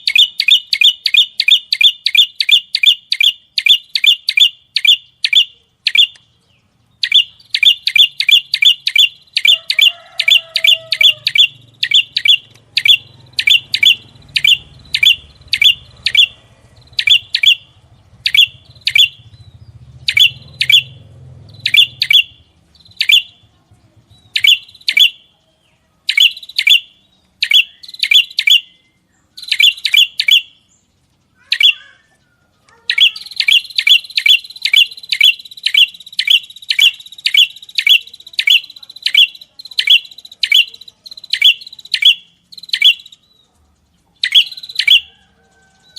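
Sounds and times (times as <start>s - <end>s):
songbird chirping: 0.0s - 45.9s.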